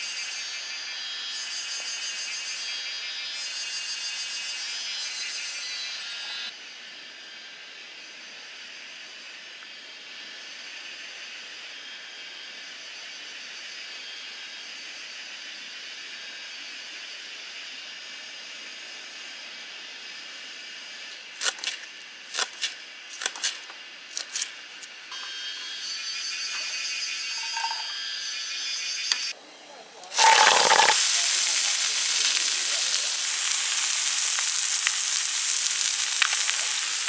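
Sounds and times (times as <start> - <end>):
steady high hiss: 29.4 - 37.0.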